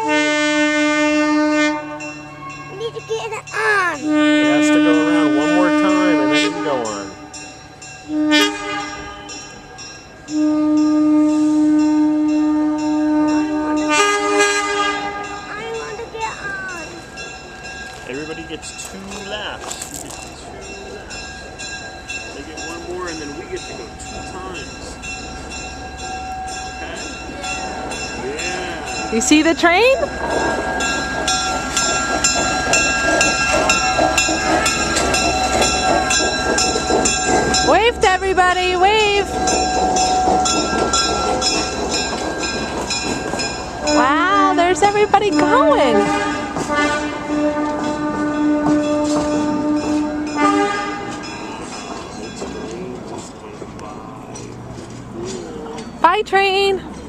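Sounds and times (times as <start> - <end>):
train rumbling: 0.0 - 57.0
bell ringing: 1.9 - 46.8, 47.4 - 53.2
locomotive whistle blasts: 4.0 - 7.2, 8.1 - 9.4, 45.4 - 51.3.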